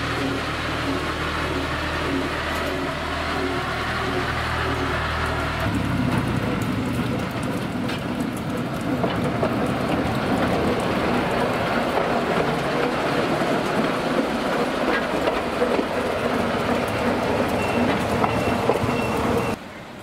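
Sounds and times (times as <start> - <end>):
train wheels clattering over track: 0.0 - 19.6.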